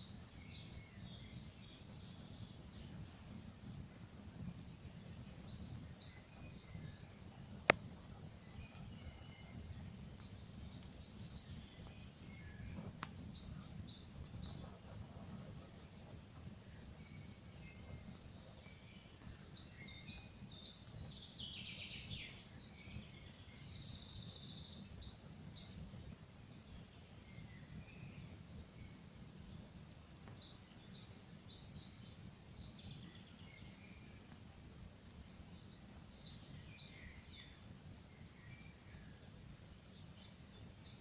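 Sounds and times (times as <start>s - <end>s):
songbirds chirping: 0.0s - 41.0s.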